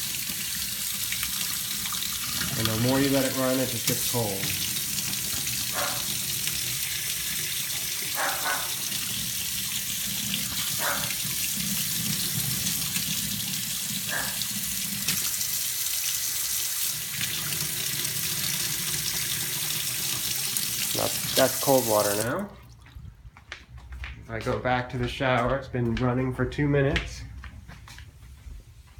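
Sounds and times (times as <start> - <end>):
faucet running: 0.0 - 22.8.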